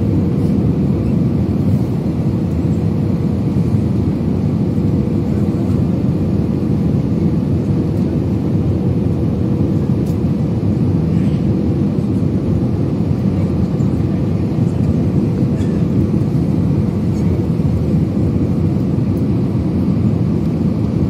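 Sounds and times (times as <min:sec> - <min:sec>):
jet engine rumble: 0:00.0 - 0:21.0.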